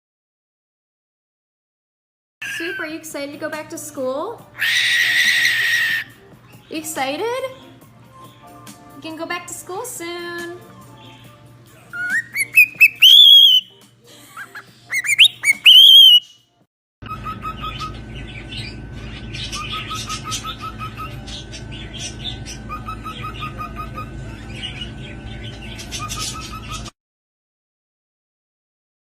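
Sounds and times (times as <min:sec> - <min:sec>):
bird whistled calls: 0:12.0 - 0:13.7, 0:14.9 - 0:16.4, 0:17.1 - 0:21.3, 0:22.1 - 0:24.9, 0:25.8 - 0:26.9
bird short chirps: 0:12.4 - 0:13.6, 0:15.0 - 0:16.3
noisy background: 0:17.1 - 0:26.9.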